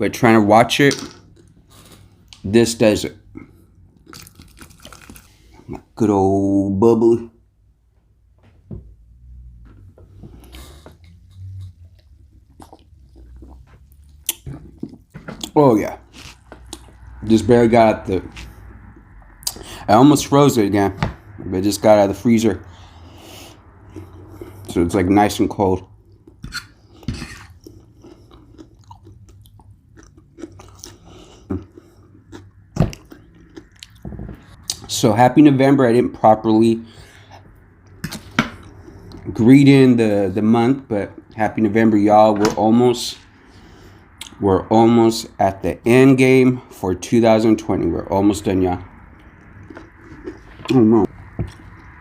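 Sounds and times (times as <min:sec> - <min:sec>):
person chewing crunchy food: 0:03.4 - 0:05.8, 0:10.3 - 0:17.2, 0:26.0 - 0:34.9, 0:37.2 - 0:39.3, 0:49.0 - 0:52.0
sipping and swallowing: 0:11.1 - 0:17.2.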